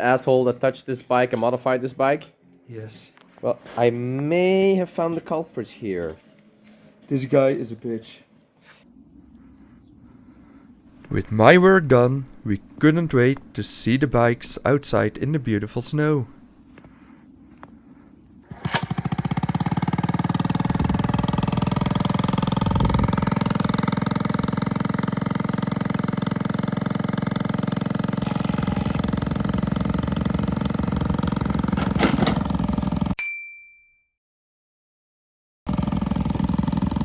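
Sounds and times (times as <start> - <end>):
minibike engine running: 18.5 - 33.2, 35.7 - 37.0.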